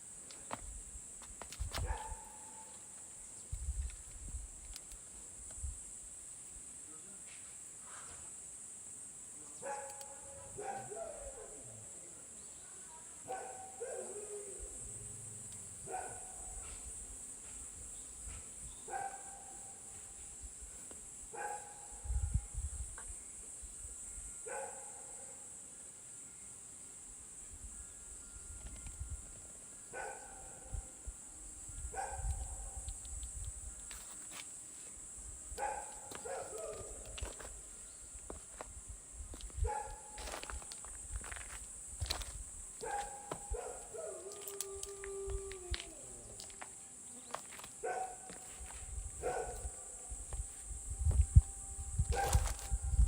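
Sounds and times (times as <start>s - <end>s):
dog barking: 1.9s - 2.7s, 9.6s - 11.6s, 13.3s - 14.3s, 15.9s - 16.8s, 18.9s - 19.6s, 21.4s - 21.8s, 24.5s - 25.1s, 30.0s - 30.5s, 32.0s - 32.3s, 35.6s - 37.0s, 39.6s - 40.1s, 42.8s - 44.5s, 47.8s - 48.4s, 49.2s - 49.9s, 52.1s - 52.5s
high-pitched hiss: 25.2s - 53.0s.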